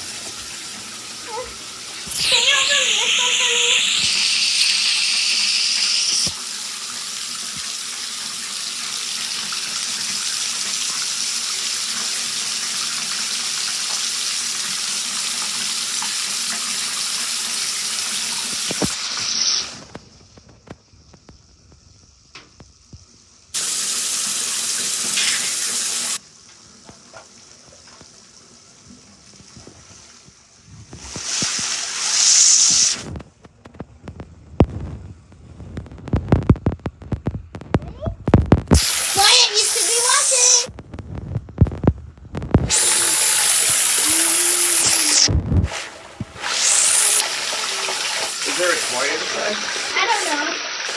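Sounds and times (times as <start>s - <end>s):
tap water running into bath: 0.0s - 33.2s, 38.3s - 40.7s, 42.5s - 50.9s.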